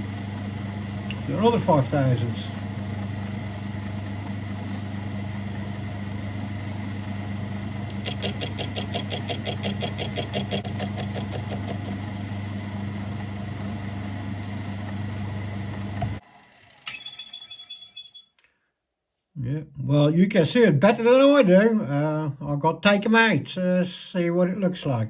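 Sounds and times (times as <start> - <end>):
lathe motor humming: 0.0 - 16.8
cutter ticking on metal: 7.8 - 12.2.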